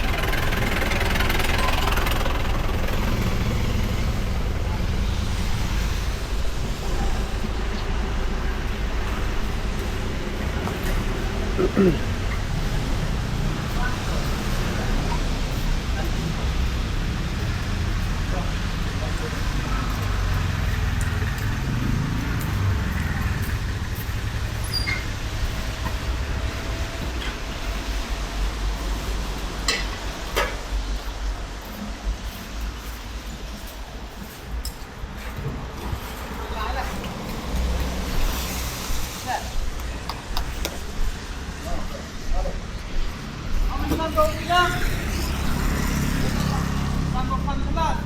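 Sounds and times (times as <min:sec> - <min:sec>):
motorcycle engine running: 0:00.0 - 0:07.6, 0:08.6 - 0:29.6
wind and road noise: 0:00.0 - 0:48.0.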